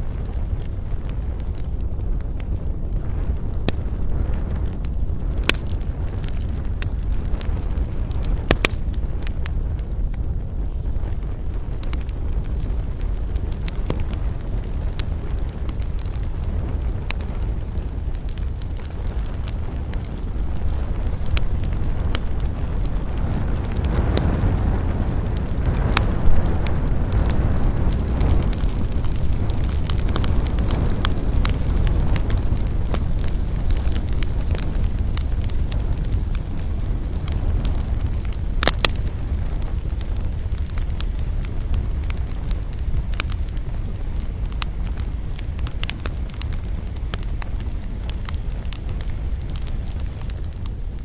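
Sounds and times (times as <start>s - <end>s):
campfire flames rumbling: 0.0s - 51.0s
wood crackling and popping: 0.0s - 51.0s.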